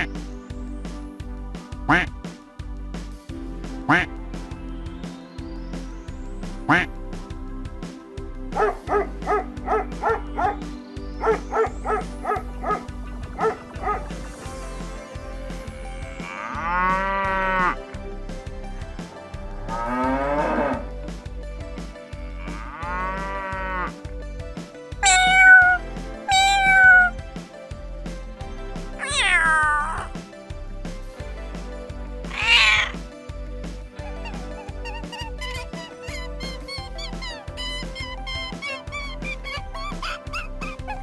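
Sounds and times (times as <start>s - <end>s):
background music with steady beat: 0.0s - 41.0s
cow mooing: 22.4s - 23.9s.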